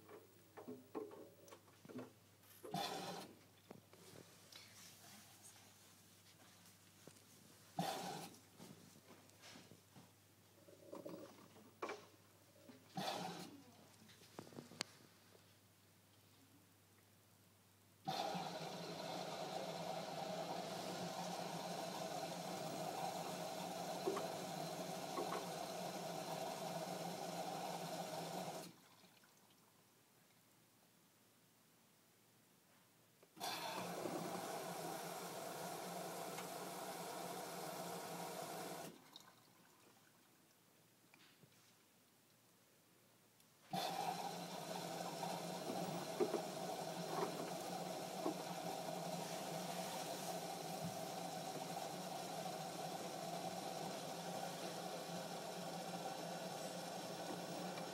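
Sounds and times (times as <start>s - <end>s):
washing machine running: 18.1s - 28.7s, 33.4s - 38.9s, 43.8s - 57.9s.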